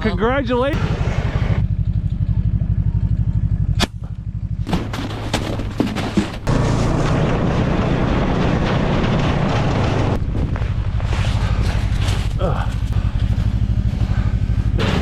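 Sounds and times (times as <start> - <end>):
steady low throb: 10.2 - 15.0.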